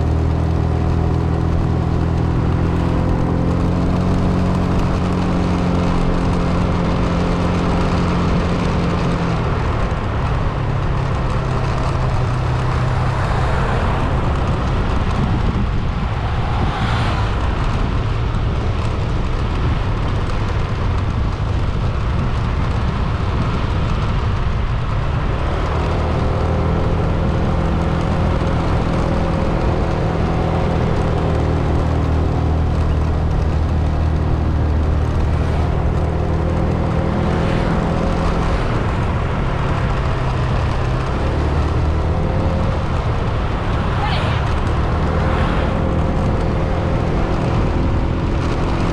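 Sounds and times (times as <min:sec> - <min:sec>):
car engine hum: 0:00.0 - 0:48.9
road and tyre noise: 0:00.0 - 0:48.9.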